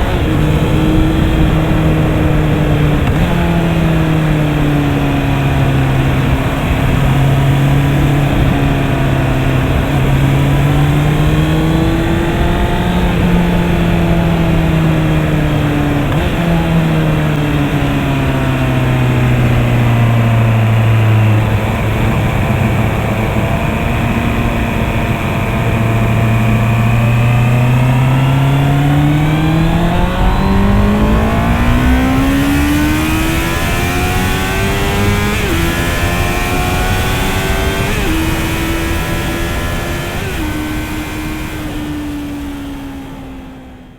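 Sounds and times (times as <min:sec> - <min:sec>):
motorcycle engine accelerating: 0:00.0 - 0:43.9
rushing noise: 0:26.6 - 0:39.2.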